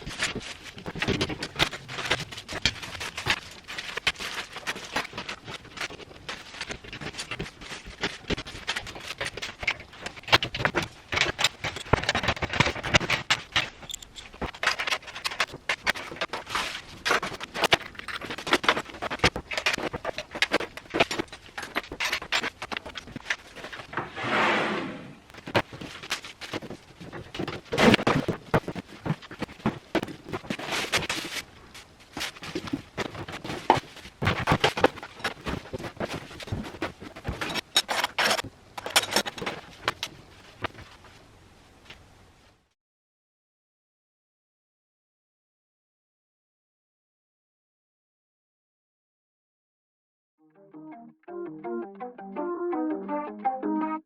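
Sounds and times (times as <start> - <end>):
clatter of tools and items: 0.0 - 24.0, 25.3 - 41.2.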